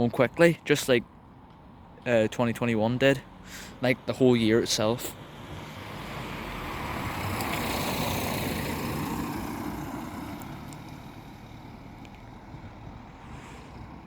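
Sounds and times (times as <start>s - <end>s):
vehicle passing by: 3.0s - 14.0s.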